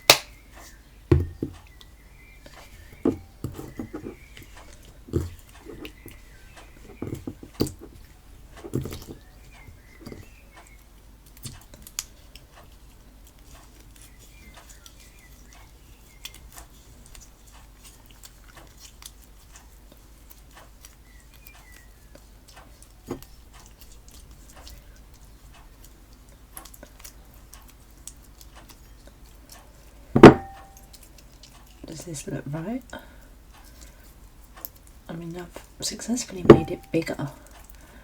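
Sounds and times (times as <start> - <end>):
loud knock: 30.2 - 30.7, 36.5 - 36.9.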